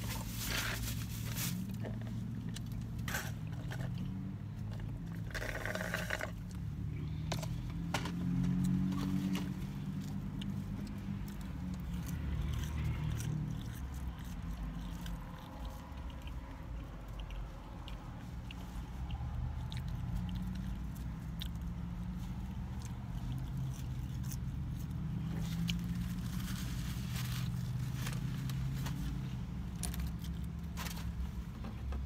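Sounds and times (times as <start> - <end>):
person chewing fries: 1.6 - 31.4
steady low rumble: 9.2 - 31.6.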